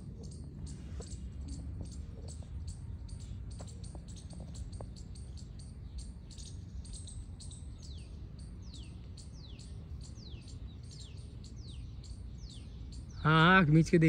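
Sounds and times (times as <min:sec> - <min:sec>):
birds chirping: 0:00.0 - 0:14.0
low steady background rumble: 0:00.0 - 0:14.0.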